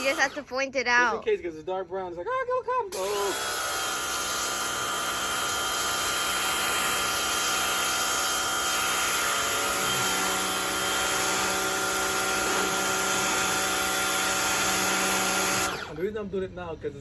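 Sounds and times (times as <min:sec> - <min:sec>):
pressure washer motor whine: 0:00.0 - 0:00.5, 0:03.0 - 0:16.0.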